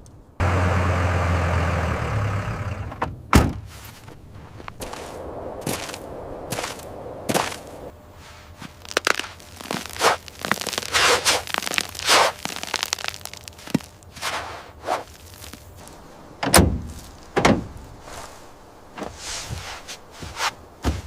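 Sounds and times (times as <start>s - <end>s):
scraping and rustling: 3.6s - 21.0s
heavy thuds: 8.6s - 21.0s.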